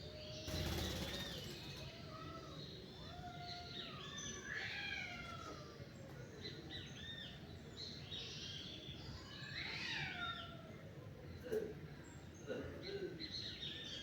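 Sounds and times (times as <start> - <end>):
birds singing and chirping: 0.2 - 2.0.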